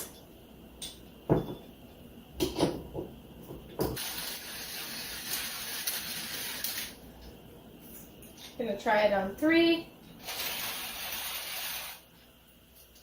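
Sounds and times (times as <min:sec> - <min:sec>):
manual coffee grinder grinding: 0:10.2 - 0:12.0.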